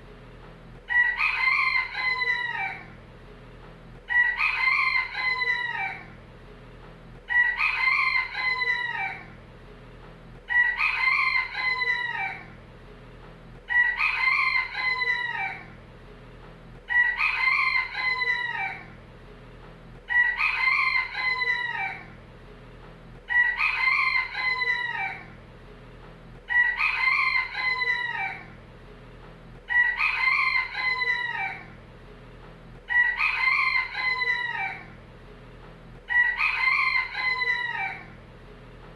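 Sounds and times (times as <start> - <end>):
rooster crowing: 0.9 - 3.0, 4.1 - 6.2, 7.3 - 9.4, 10.5 - 12.6, 13.7 - 15.8, 16.9 - 19.0, 20.1 - 22.2, 23.3 - 25.4, 26.5 - 28.6, 29.7 - 31.8, 32.9 - 35.0, 36.1 - 38.2.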